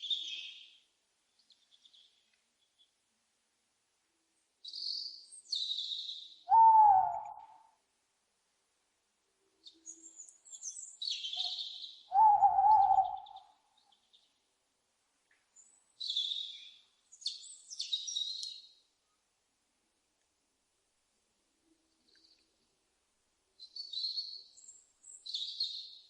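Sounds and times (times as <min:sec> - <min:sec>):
higher-pitched owl calls: 0:06.5 - 0:07.7, 0:11.2 - 0:13.6
owl wavering call: 0:06.5 - 0:07.7, 0:11.2 - 0:13.6.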